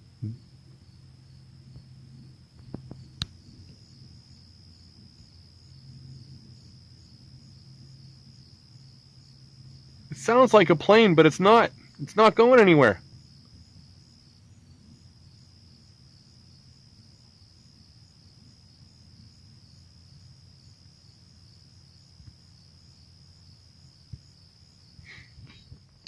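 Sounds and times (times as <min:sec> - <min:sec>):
distant motors droning: 0:00.0 - 0:16.2
high-pitched insect trill: 0:00.0 - 0:26.0.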